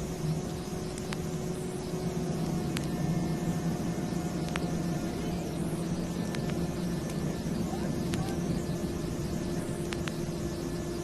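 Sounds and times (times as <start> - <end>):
vehicle engine drone: 0.0 - 11.0
vinyl record clicks: 0.9 - 1.3, 6.2 - 7.2, 8.0 - 8.4, 9.8 - 10.2.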